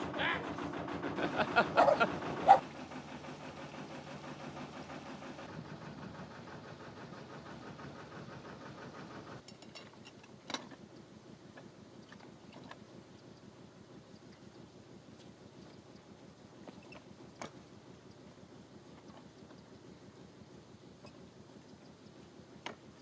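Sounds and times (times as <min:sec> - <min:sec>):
boat diesel engine running: 0:00.0 - 0:09.4.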